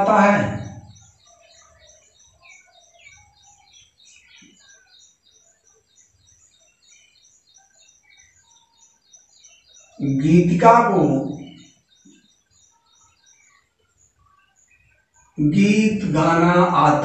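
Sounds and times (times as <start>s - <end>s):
high bird chirp repeated quickly: 0.0s - 17.0s
scattered bird calls: 0.0s - 17.0s.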